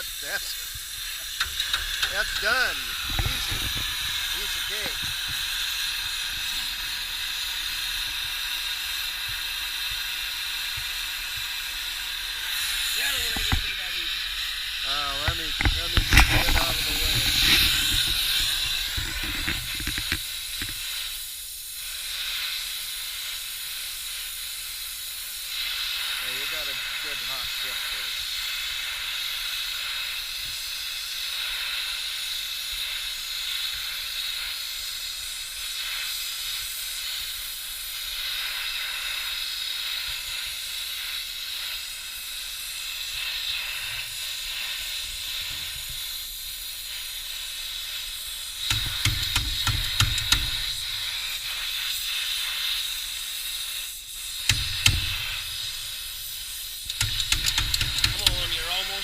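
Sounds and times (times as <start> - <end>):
brazing torch flame hissing: 0.0 - 59.0
sharp knocks and clatters: 1.3 - 4.3, 15.2 - 20.8, 48.6 - 50.8, 54.4 - 55.7, 56.9 - 58.6.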